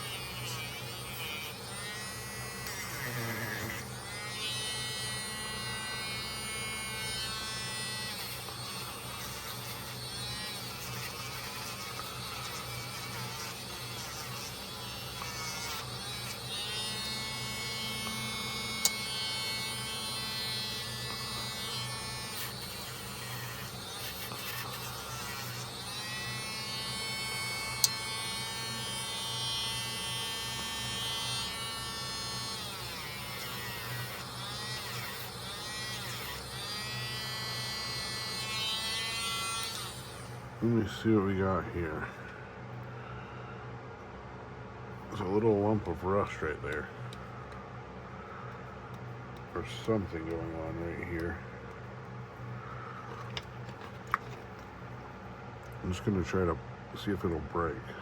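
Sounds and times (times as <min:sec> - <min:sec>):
small electric motor buzzing: 0:00.0 - 0:41.3.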